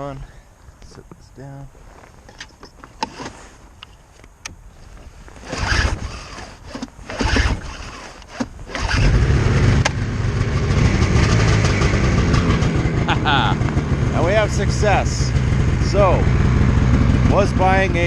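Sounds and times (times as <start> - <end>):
snowmobile engine starting and running: 5.3 - 18.0.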